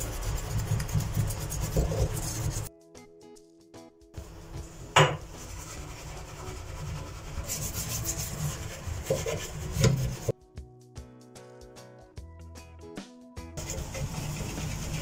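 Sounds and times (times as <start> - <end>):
rubbing and scraping on a surface: 0.0 - 2.7, 5.2 - 10.3, 13.6 - 15.0.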